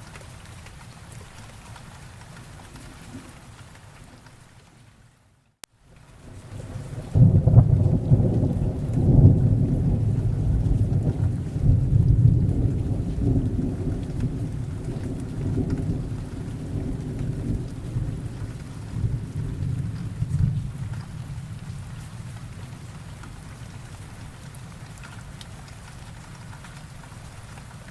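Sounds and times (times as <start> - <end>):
steady rain: 0.0 - 27.9
thunder rumbling: 6.2 - 24.9.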